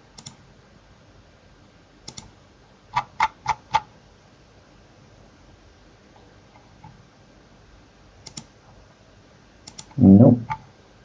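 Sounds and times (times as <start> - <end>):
computer keyboard keys clicking: 0.2 - 0.4, 8.2 - 8.5, 9.7 - 10.0.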